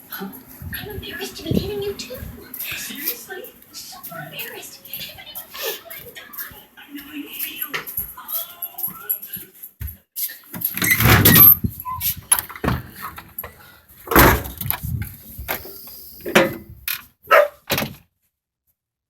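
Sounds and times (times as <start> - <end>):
dog barking: 17.3 - 17.7.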